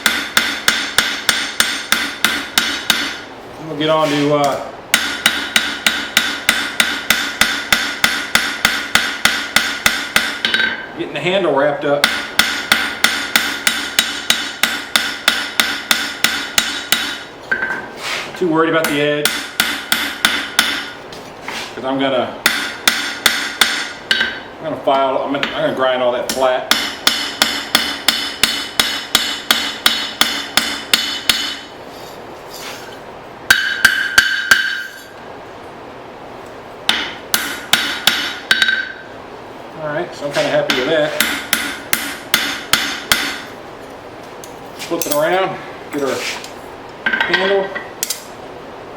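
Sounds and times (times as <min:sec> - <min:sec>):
hammer striking steel on anvil: 0:00.0 - 0:03.3, 0:04.4 - 0:10.9, 0:12.0 - 0:17.9, 0:18.8 - 0:21.0, 0:22.4 - 0:24.5, 0:26.3 - 0:31.7, 0:33.5 - 0:35.1, 0:36.9 - 0:39.1, 0:40.3 - 0:43.5, 0:45.0 - 0:45.4.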